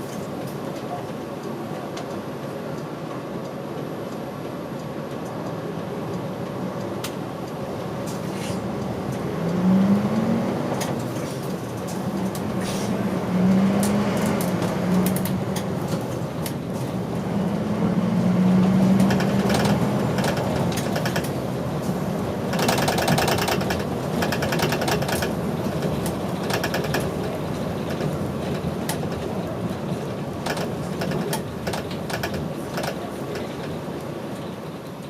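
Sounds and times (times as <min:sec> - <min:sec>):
bus diesel engine droning: 0:00.0 - 0:35.0.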